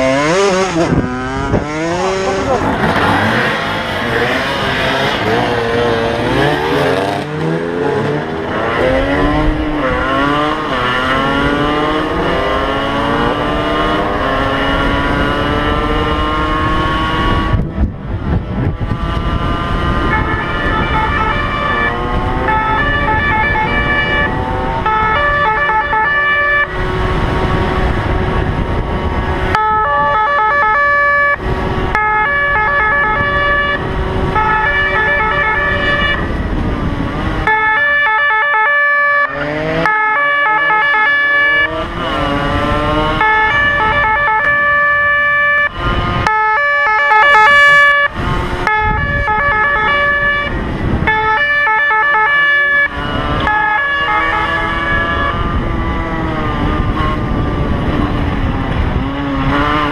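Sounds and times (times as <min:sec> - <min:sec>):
vehicle engine and wind rumble: 0:00.0 - 0:59.9
two-tone police siren: 0:08.8 - 0:17.6, 0:19.7 - 0:27.2, 0:29.4 - 0:36.4, 0:37.4 - 0:58.5.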